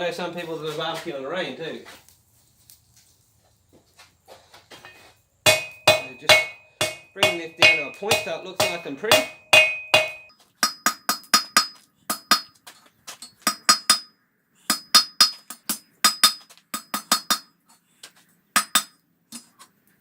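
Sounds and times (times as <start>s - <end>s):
hammer ringing on anvil: 4.8s - 12.5s.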